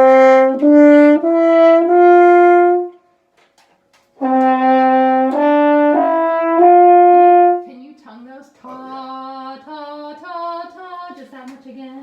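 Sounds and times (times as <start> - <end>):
french horn playing rising notes: 0.0 - 3.0, 4.2 - 7.7.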